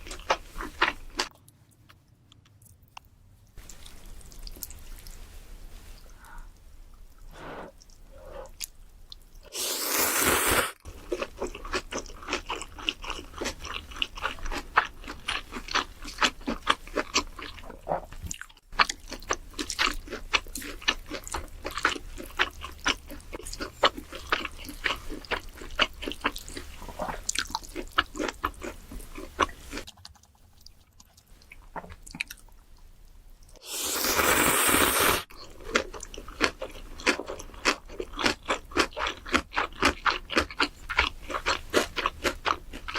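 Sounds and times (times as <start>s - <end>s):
person crunching food: 0.0s - 2.8s, 9.5s - 30.3s, 33.6s - 42.9s.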